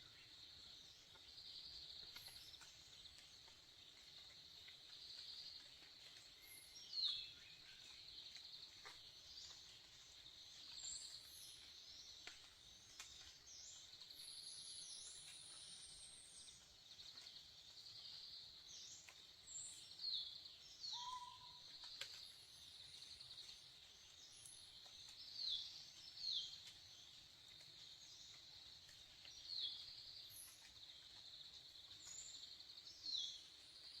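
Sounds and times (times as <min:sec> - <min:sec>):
bird chirps: 0:10.6 - 0:34.0.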